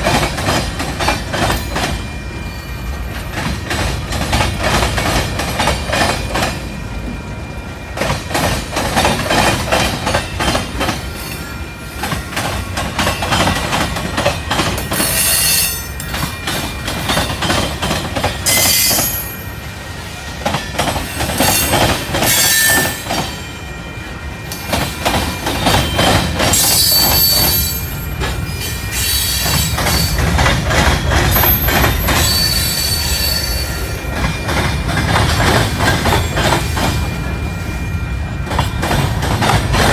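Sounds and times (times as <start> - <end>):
freight train rumble: 0.0 - 39.9
steel wheels clacking on rails: 0.0 - 39.9
metallic wheel squeals: 15.0 - 17.5, 18.4 - 19.6, 21.1 - 34.7.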